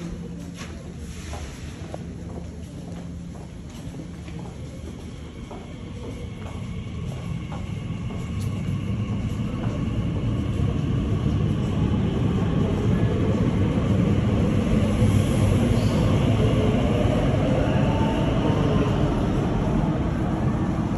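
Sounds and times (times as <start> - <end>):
train rumbling pulling away: 4.3 - 20.9.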